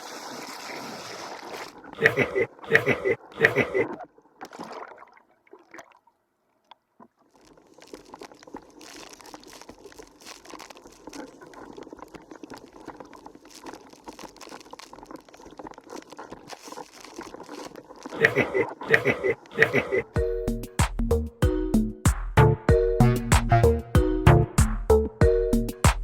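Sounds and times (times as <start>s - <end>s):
water splashing around a board: 0.0s - 6.1s.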